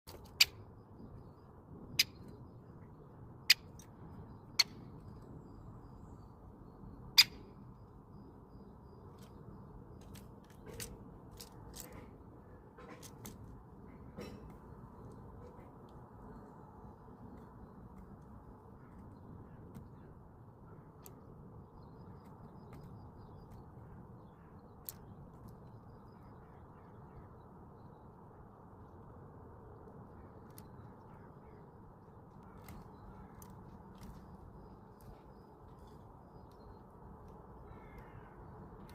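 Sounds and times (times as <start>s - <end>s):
woodpecker clicks: 0.1s - 1.3s, 1.9s - 2.4s, 3.4s - 5.2s, 7.1s - 7.6s, 20.7s - 26.5s, 32.3s - 38.9s
small birds chirping: 0.1s - 28.4s, 29.8s - 38.9s.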